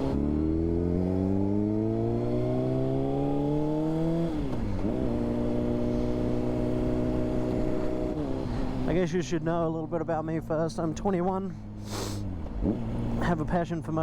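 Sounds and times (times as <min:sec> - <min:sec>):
motorcycle engine revving: 0:00.0 - 0:09.0, 0:11.5 - 0:13.4.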